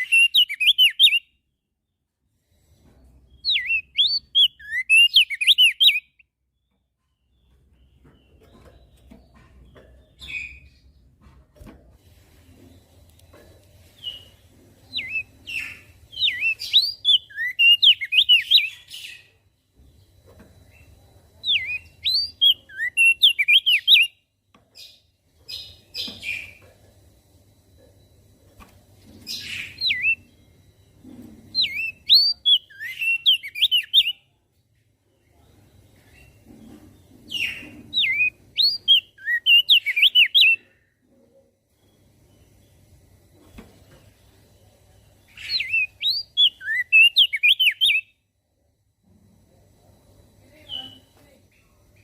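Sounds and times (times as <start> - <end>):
bird twittering: 29.3 - 30.3, 45.3 - 48.1.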